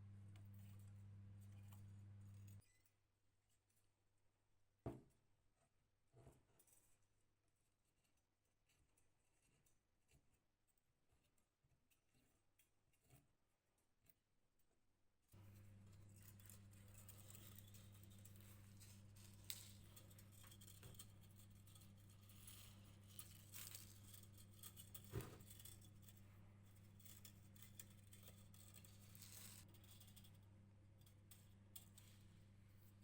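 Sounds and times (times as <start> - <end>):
faint low hum: 0.0 - 2.9, 15.4 - 33.0
light clicks and scratches: 0.2 - 3.9, 5.6 - 14.7, 15.4 - 33.0.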